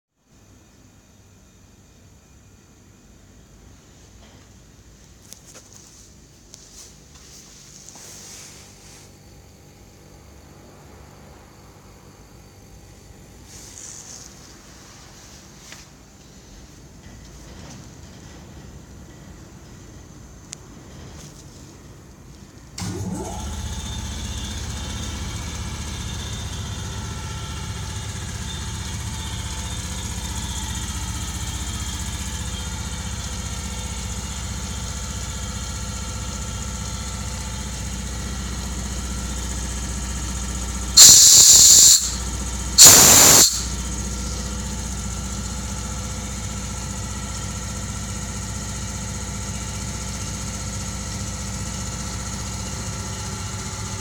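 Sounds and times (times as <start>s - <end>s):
air compressor humming: 5.2s - 17.6s, 22.7s - 54.0s
compressed air hissing: 41.0s - 43.8s.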